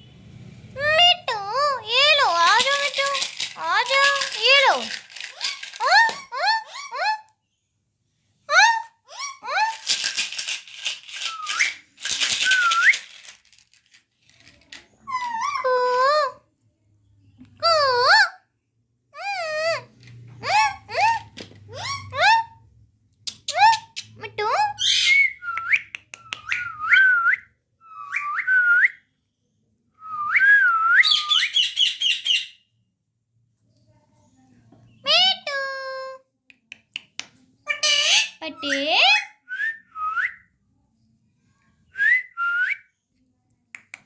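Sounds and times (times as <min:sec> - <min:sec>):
parrot chirps: 0:31.0 - 0:32.7, 0:37.6 - 0:39.5
parrot screeching: 0:37.7 - 0:39.4.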